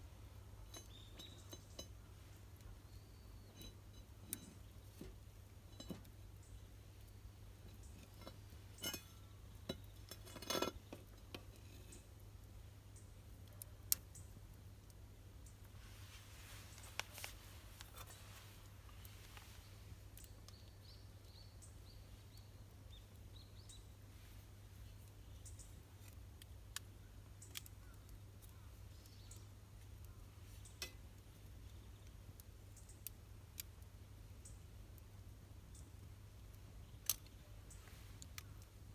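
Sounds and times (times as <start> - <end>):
campfire wood crackling: 0.0 - 38.9.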